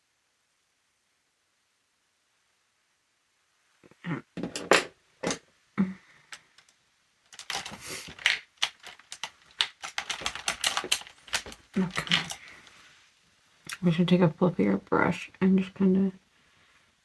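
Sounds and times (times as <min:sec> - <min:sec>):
small hard objects clicking: 0:06.3 - 0:12.7
brushes clattering: 0:07.3 - 0:12.8.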